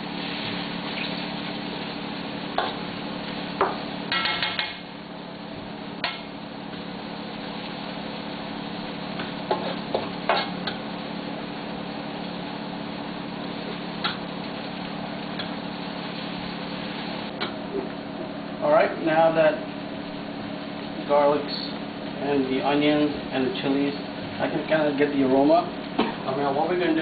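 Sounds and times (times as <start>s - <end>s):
vegetables sizzling in oil: 0.0s - 18.6s
steady low hum: 0.0s - 27.0s.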